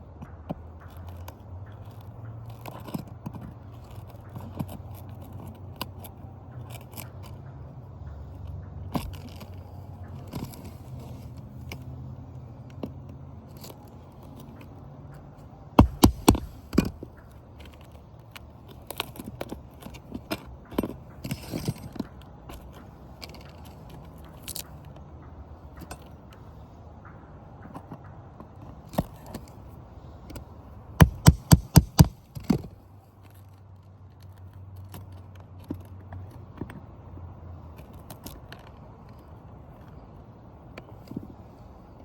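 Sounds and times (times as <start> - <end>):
hand tools tapping and scraping: 0.0 - 42.0
sharp knocks: 15.8 - 17.1, 31.0 - 32.6.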